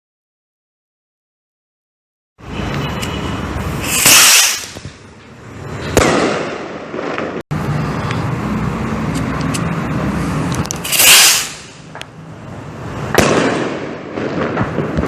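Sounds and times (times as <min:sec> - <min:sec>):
steady background noise: 0:02.4 - 0:15.0
firework rocket hissing: 0:03.6 - 0:05.0, 0:10.2 - 0:11.9
firework bang: 0:03.8 - 0:05.0, 0:05.9 - 0:07.4, 0:10.8 - 0:12.0, 0:13.1 - 0:15.0.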